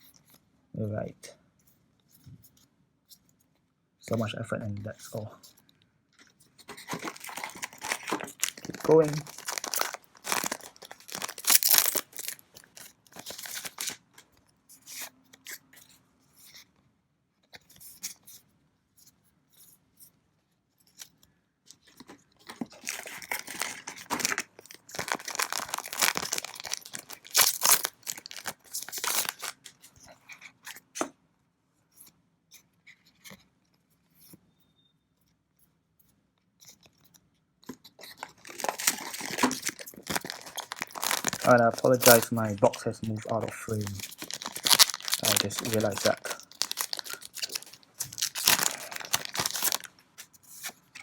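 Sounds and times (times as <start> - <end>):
foil wrappers tearing and crinkling: 6.7 - 14.2, 22.5 - 29.8, 38.0 - 51.0.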